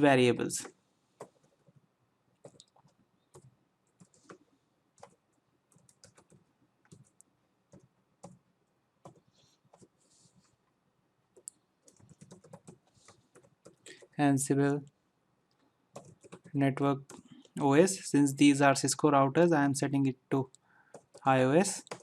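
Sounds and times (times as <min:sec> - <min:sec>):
computer keyboard typing: 0:00.6 - 0:01.8, 0:02.4 - 0:04.4, 0:05.0 - 0:08.4, 0:09.0 - 0:09.9, 0:11.3 - 0:14.2, 0:15.9 - 0:17.6, 0:20.9 - 0:22.0.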